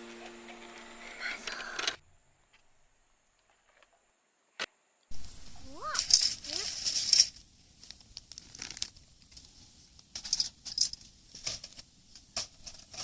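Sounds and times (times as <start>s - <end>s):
crinkling and clicking: 5.9s - 13.0s.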